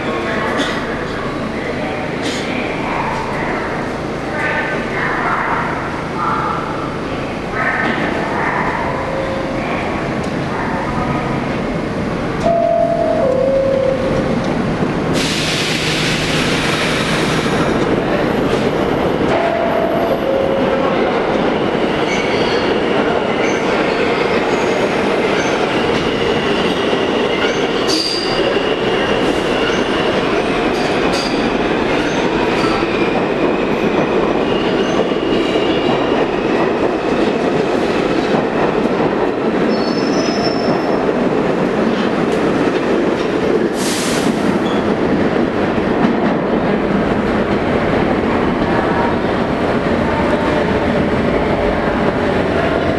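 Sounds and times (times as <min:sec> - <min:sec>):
subway train passing: 0:00.0 - 0:52.9
burst of hiss: 0:15.2 - 0:17.5.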